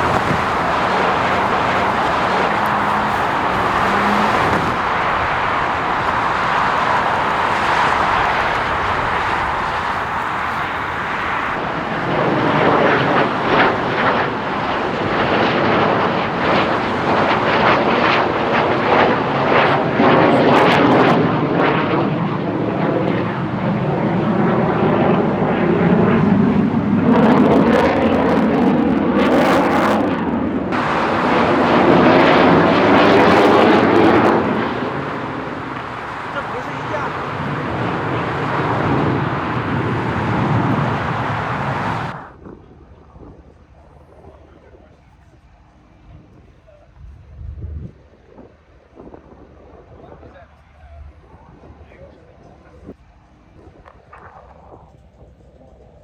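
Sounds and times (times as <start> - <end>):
aircraft engine flying past: 0.0 - 42.4.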